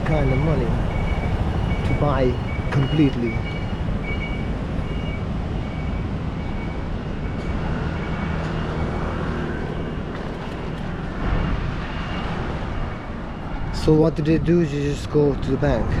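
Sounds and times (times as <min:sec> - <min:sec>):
road traffic: 0:00.0 - 0:16.0
faint high beep: 0:00.1 - 0:09.0.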